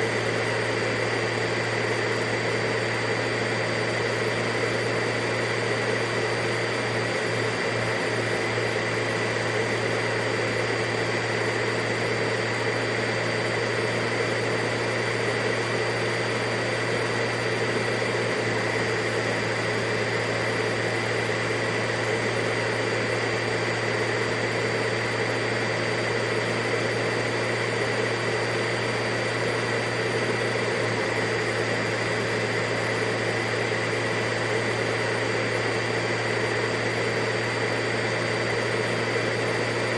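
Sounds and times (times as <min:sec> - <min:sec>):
vacuum cleaner motor running: 0:00.0 - 0:39.9.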